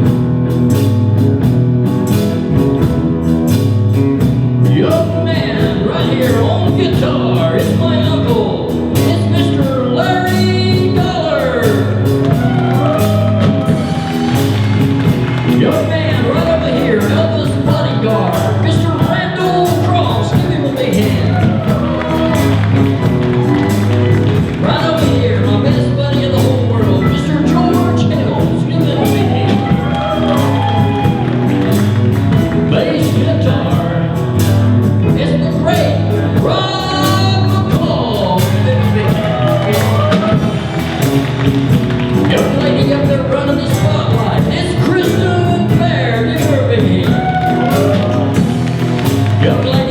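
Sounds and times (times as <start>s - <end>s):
live band playing: 0.0s - 49.9s
person singing: 42.2s - 48.6s.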